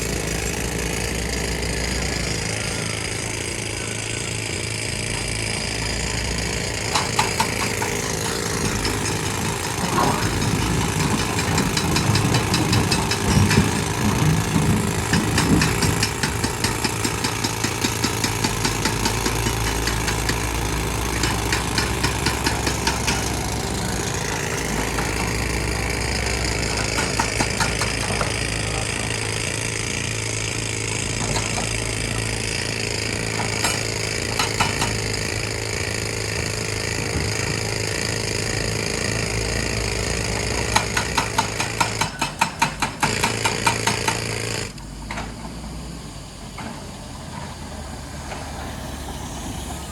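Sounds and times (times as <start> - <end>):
diesel machinery running: 0.0 - 49.9
rapid rattling knocks: 6.9 - 20.5
rising whine: 48.0 - 49.9.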